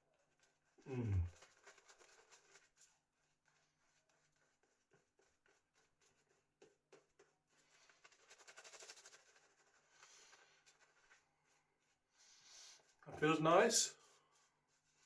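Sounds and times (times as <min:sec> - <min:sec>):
shaving brush swishing lather: 0:01.3 - 0:12.2.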